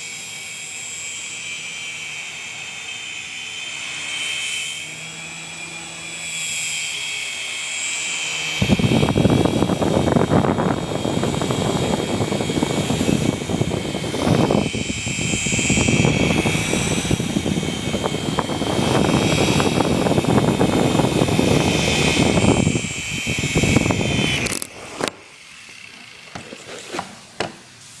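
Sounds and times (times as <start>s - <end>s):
helicopter motor and rotors whining: 0.0s - 27.0s
rotor wash rushing: 8.3s - 25.4s.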